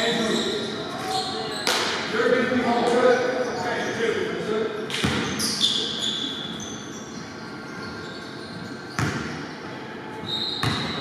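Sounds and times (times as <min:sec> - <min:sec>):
sneakers squeaking: 0:00.0 - 0:02.1, 0:03.4 - 0:04.1, 0:04.8 - 0:11.0
gym background noise: 0:00.0 - 0:11.0
basketball bouncing on court: 0:04.9 - 0:05.4, 0:08.9 - 0:09.5, 0:10.6 - 0:11.0.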